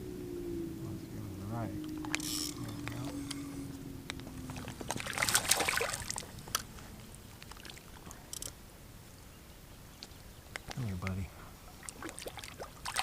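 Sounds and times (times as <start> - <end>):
water splashing and sloshing: 1.8 - 8.4, 11.6 - 13.0.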